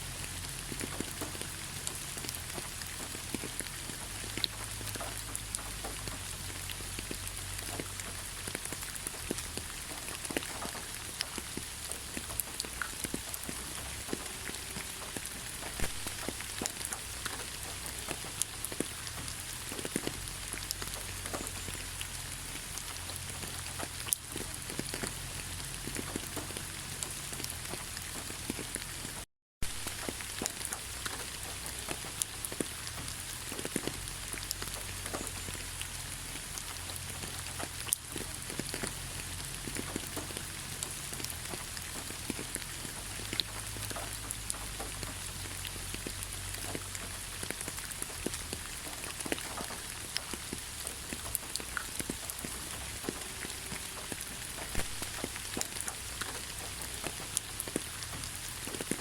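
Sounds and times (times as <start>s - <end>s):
steady rain pattering: 0.0s - 59.0s.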